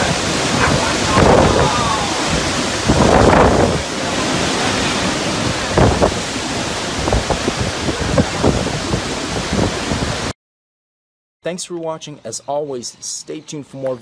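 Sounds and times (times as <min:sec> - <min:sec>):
strong wind buffeting microphone: 0:00.0 - 0:10.3.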